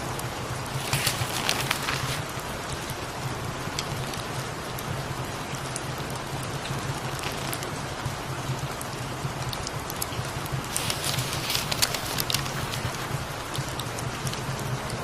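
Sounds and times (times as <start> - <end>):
steady rain: 0.0 - 15.0
fireplace crackling: 0.7 - 2.4, 10.6 - 13.8.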